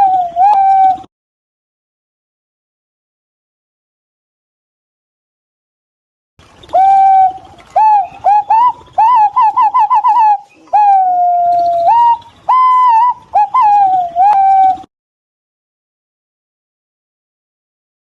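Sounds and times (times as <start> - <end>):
pigeon fluting whistles: 0.0 - 1.1, 6.7 - 14.9.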